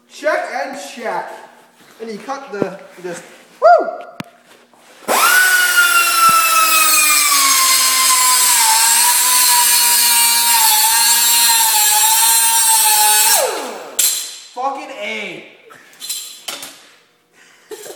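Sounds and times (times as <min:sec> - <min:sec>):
pneumatic air grinder whine: 0:05.1 - 0:14.4.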